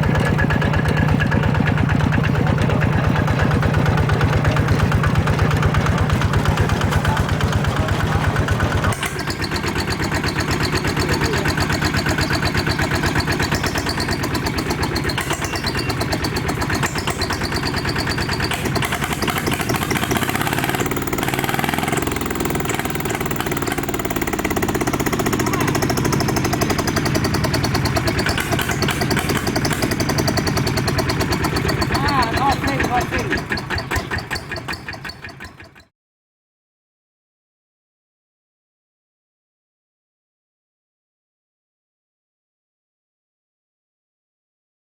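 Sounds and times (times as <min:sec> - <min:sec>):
small tractor engine knocking: 0:00.0 - 0:35.9.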